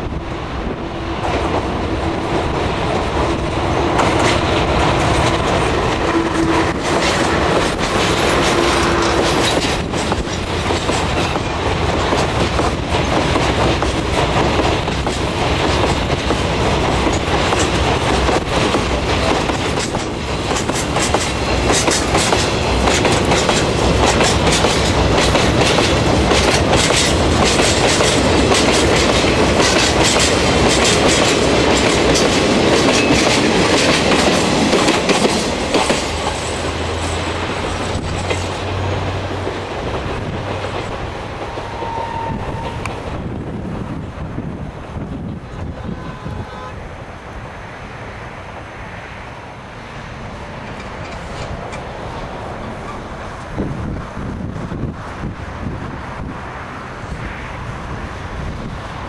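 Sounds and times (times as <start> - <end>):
train wheels clacking on rails: 1.2 - 43.3, 50.6 - 55.0.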